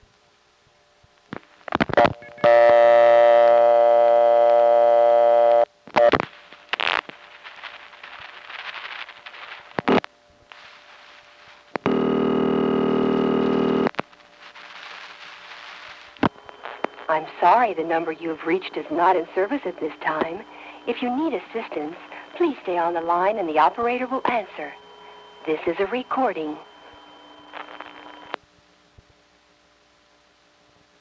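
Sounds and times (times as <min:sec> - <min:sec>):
buzzy telephone tone: 0:02.0 - 0:06.2, 0:10.7 - 0:28.4
faint line hiss: 0:05.8 - 0:11.9, 0:13.6 - 0:22.8
telephone intercept recording: 0:10.8 - 0:28.4.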